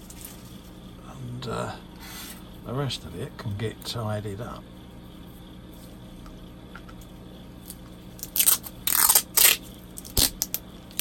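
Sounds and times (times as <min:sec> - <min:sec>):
tape tearing rips: 0:08.2 - 0:11.0.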